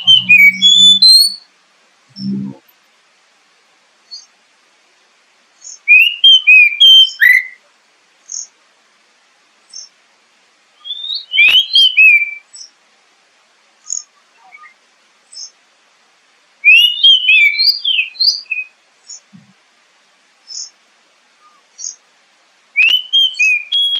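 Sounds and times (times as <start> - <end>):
bird singing: 0.0 - 1.4, 2.1 - 2.6, 5.6 - 7.6, 10.8 - 12.7, 13.8 - 15.6, 16.6 - 19.5, 22.8 - 23.9.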